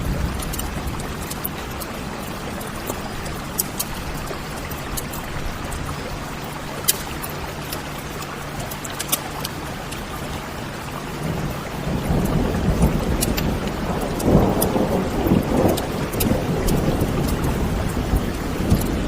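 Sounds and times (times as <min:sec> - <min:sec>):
thunder rumble: 0:00.0 - 0:06.5, 0:11.1 - 0:19.0
wood fire crackling and popping: 0:00.0 - 0:10.4, 0:11.9 - 0:19.0
steady rain: 0:00.0 - 0:19.0.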